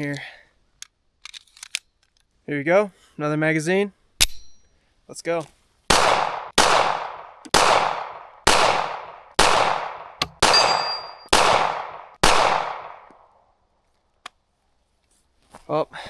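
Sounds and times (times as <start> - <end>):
metallic ping: 4.2 - 4.7, 10.2 - 11.3
pistol shots with echo: 5.9 - 13.1.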